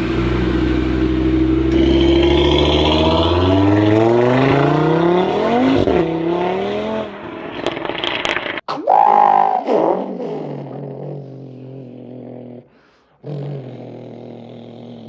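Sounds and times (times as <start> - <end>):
man imitating engine revving: 1.7 - 5.8, 8.7 - 15.0.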